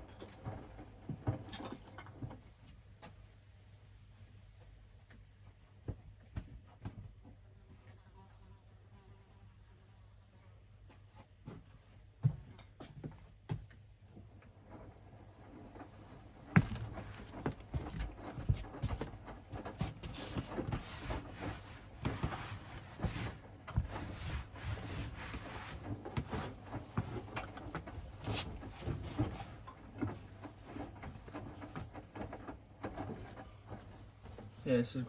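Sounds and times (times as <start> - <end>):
washing machine low hum: 13.4 - 35.0.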